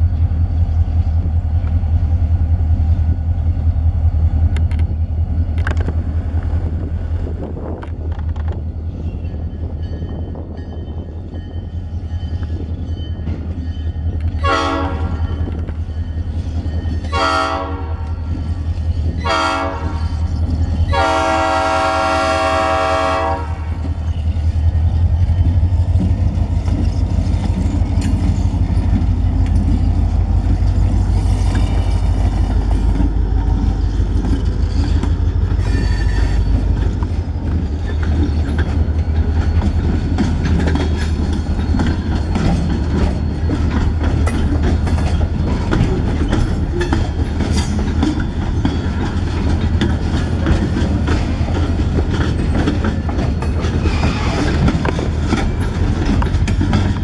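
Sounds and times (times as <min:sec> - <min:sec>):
diesel locomotive engine rumbling: 0:00.0 - 0:57.0
train cars clickety-clack on rails: 0:00.0 - 0:57.0
locomotive horn blasts: 0:14.4 - 0:15.2, 0:17.1 - 0:18.1, 0:19.2 - 0:20.1, 0:20.9 - 0:23.8.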